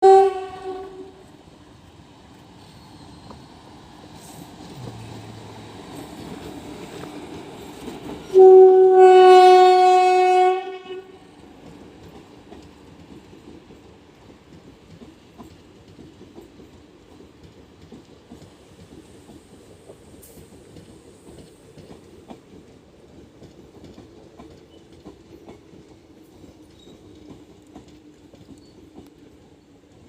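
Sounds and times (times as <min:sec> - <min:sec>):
train horn blast: 0:00.0 - 0:01.3, 0:08.3 - 0:11.2
train rumbling: 0:00.0 - 0:30.0.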